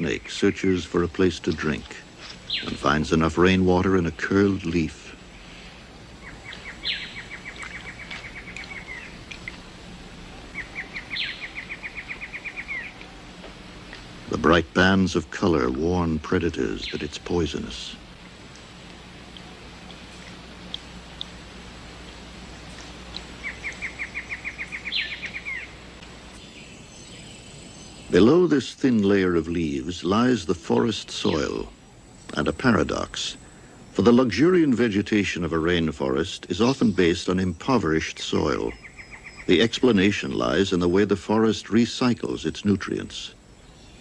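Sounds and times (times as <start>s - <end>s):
faint rainforest ambience: 0.0s - 44.0s
bird trilling: 6.2s - 9.6s, 10.2s - 13.3s, 22.6s - 25.8s, 38.6s - 40.0s.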